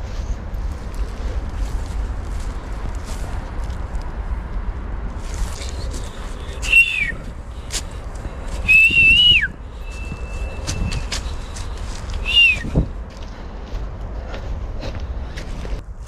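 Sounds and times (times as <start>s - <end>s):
person whistling: 6.6s - 7.2s, 8.6s - 11.2s, 12.2s - 12.8s.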